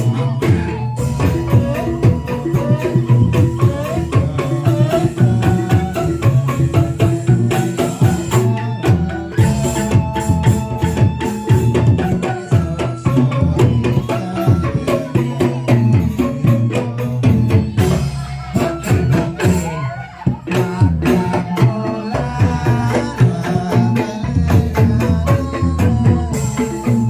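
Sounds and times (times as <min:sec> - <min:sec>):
drums and tambourine beat: 0:00.0 - 0:27.0.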